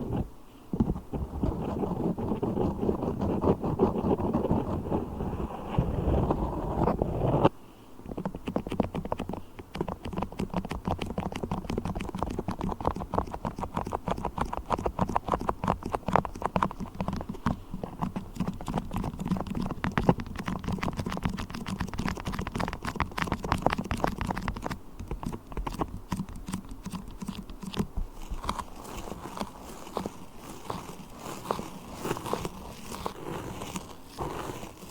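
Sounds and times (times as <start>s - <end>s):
beeswax clicking and crackling: 8.1s - 34.9s.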